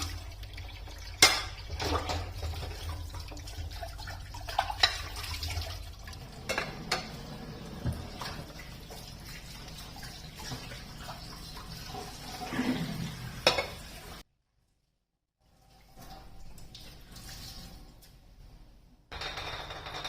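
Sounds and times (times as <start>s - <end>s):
running water: 0.0s - 14.2s
dishes and utensils clinking: 1.2s - 2.7s, 4.5s - 5.4s, 6.1s - 10.8s, 13.4s - 13.9s.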